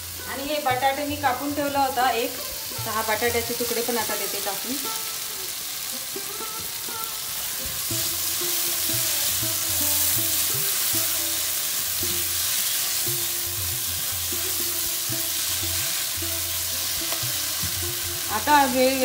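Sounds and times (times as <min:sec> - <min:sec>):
background music: 0:00.0 - 0:19.0
food sizzling in a frying pan: 0:00.0 - 0:19.0.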